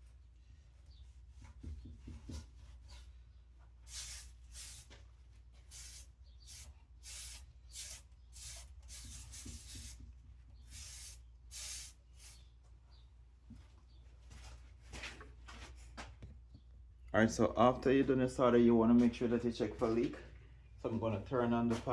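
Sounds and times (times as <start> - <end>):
scratchy rubbing on copper pipe: 1.0 - 5.0, 5.6 - 12.4.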